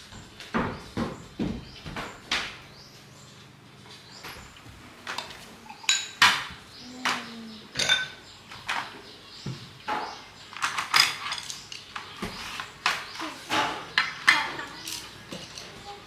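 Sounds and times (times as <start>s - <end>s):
utensils clinking on dishes: 4.2s - 9.1s, 9.8s - 16.0s.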